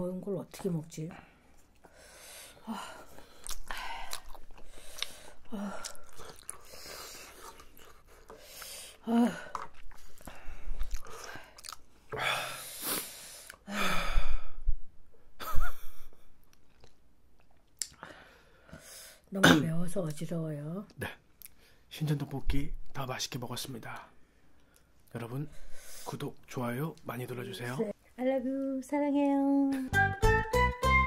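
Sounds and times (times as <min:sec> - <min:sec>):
wet chewing noises: 0:03.1 - 0:12.2.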